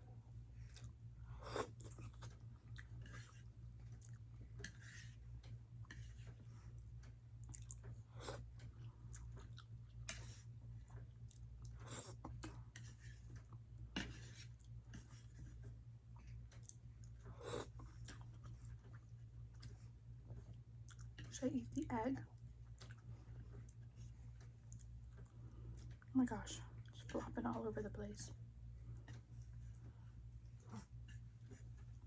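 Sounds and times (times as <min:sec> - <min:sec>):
faint low hum: 0:00.0 - 0:32.0
person chewing food: 0:00.5 - 0:21.3, 0:22.4 - 0:26.1.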